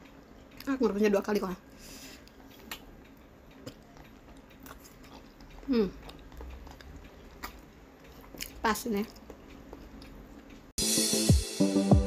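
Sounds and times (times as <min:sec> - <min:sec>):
person chewing an egg: 0:02.2 - 0:10.6.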